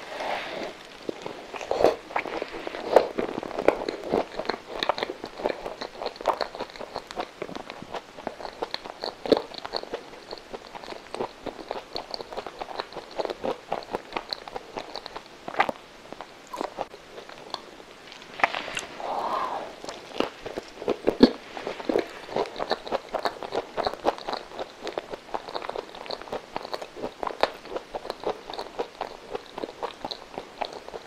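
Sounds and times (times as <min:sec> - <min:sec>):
biting food: 0:00.8 - 0:18.9, 0:19.8 - 0:31.0
moist chewing mouth clicks: 0:19.8 - 0:31.0.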